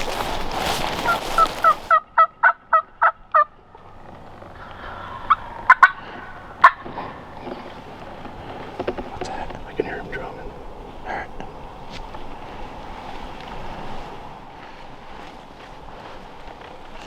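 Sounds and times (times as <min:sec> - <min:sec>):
rustling: 0:00.0 - 0:02.0
turkey yelping: 0:01.0 - 0:03.6, 0:04.6 - 0:07.3
turkey clucks: 0:01.0 - 0:03.8, 0:04.5 - 0:11.6.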